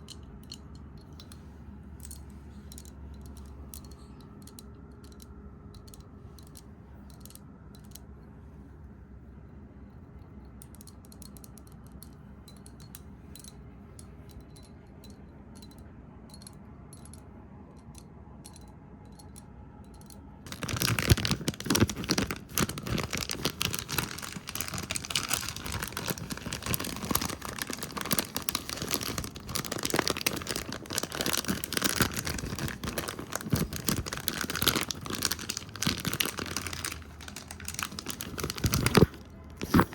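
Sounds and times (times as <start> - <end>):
fast tapping and scratching on microphone: 20.5 - 39.9.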